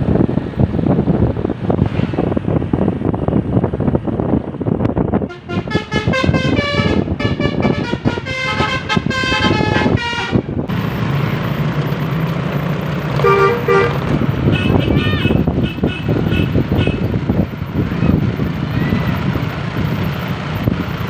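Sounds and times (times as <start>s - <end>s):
bus engine running: 0.0s - 21.0s
bus horn playing a tune: 5.2s - 10.6s, 13.2s - 17.2s.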